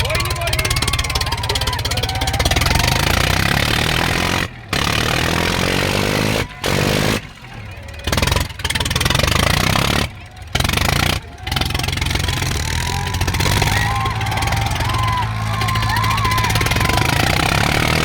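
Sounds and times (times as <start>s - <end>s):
tractor diesel engines running hard: 0.0s - 18.0s.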